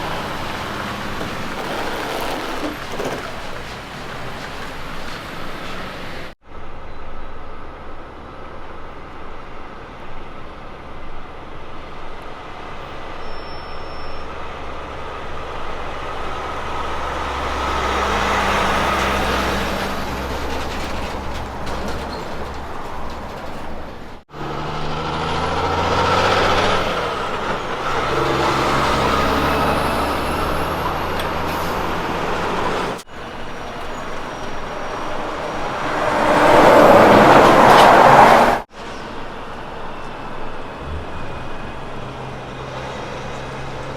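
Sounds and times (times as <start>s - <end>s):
tyre noise: 0.0s - 6.3s
trucks driving past: 0.0s - 43.9s.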